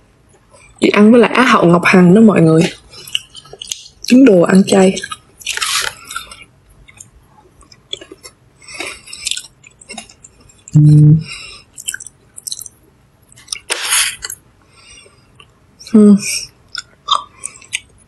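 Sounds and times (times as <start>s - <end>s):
person chewing: 2.6s - 15.6s, 16.5s - 18.0s.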